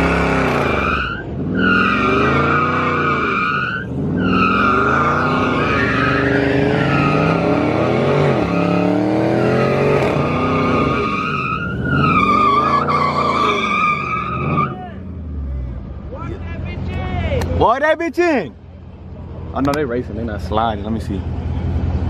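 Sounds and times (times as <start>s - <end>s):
car engine revving: 0.0s - 16.1s
tires squealing: 0.0s - 17.8s.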